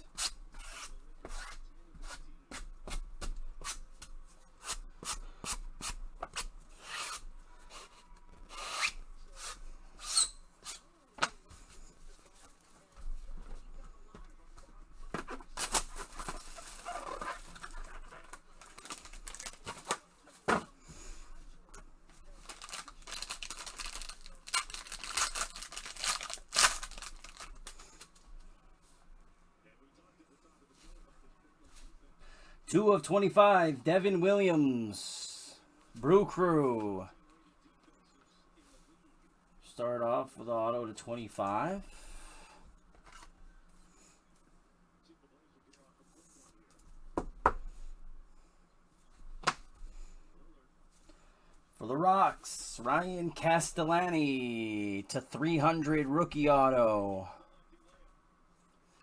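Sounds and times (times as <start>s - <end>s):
cards rubbing and sliding: 0.1s - 11.8s, 15.2s - 20.1s, 22.4s - 28.2s
packaging crinkling: 15.6s - 20.0s, 22.4s - 28.2s
packaging ripping: 15.6s - 20.0s, 22.4s - 28.1s.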